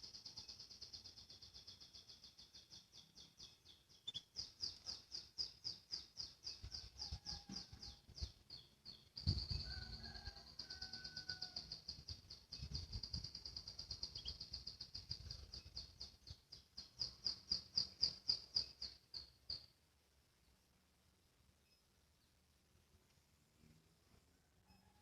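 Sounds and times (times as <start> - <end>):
canary singing trill: 0.3 - 9.6, 11.8 - 16.1.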